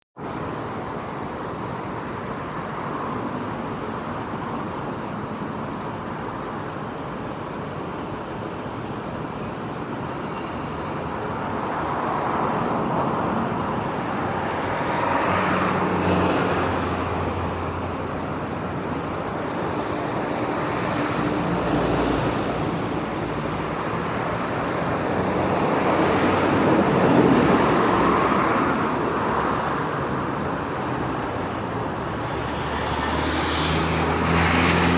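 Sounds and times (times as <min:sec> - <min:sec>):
road traffic rushing past: 0:00.2 - 0:34.9.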